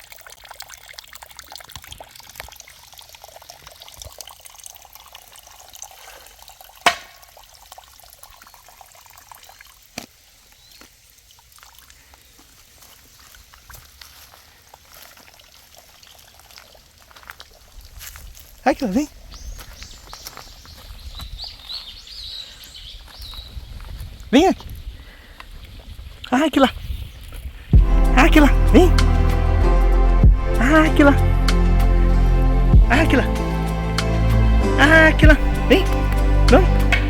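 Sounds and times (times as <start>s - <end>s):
water trickling: 0.0s - 20.9s.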